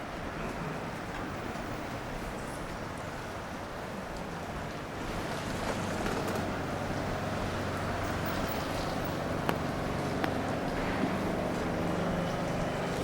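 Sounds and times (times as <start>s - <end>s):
low engine hum: 0.0s - 13.0s
tyres hissing on wet road: 0.0s - 13.0s.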